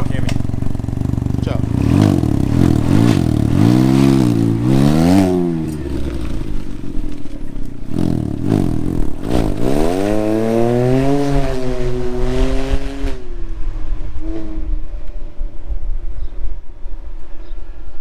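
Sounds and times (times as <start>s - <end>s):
engine revving and accelerating: 1.0s - 15.0s.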